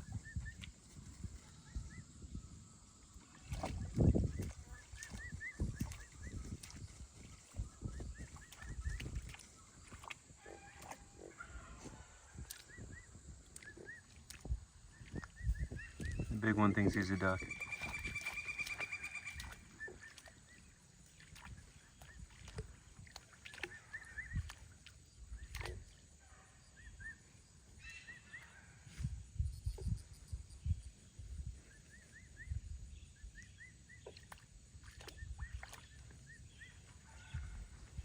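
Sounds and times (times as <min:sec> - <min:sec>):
water splashing and sloshing: 0:00.0 - 0:29.3, 0:30.9 - 0:38.0
high bird chirps: 0:15.4 - 0:20.2.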